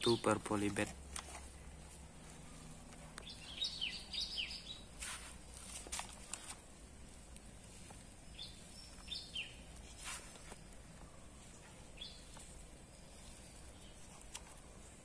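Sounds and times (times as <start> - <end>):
bird chirping: 2.4 - 5.0, 8.2 - 15.0.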